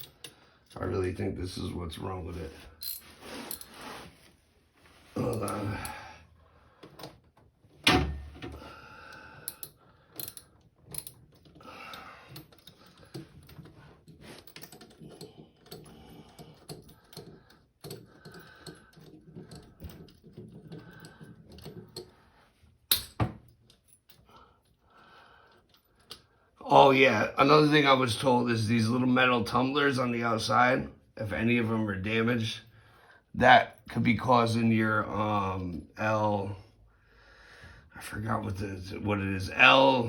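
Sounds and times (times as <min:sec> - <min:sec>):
metal bolts and tool clicking: 0:06.8 - 0:22.2, 0:22.9 - 0:24.2.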